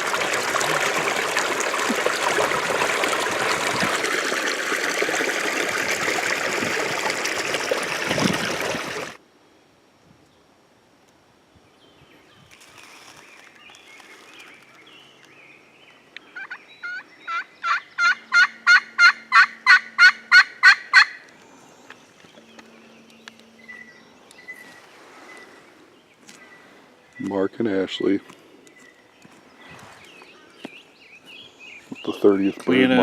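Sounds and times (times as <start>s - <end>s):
turkey yelping: 16.4s - 21.2s.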